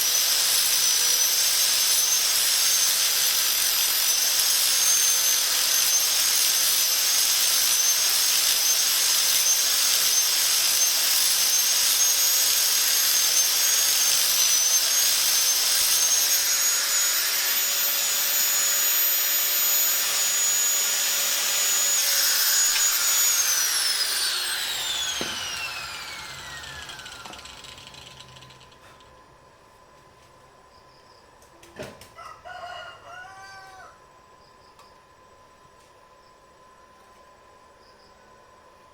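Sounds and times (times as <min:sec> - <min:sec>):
power tool whining: 0:00.0 - 0:29.1.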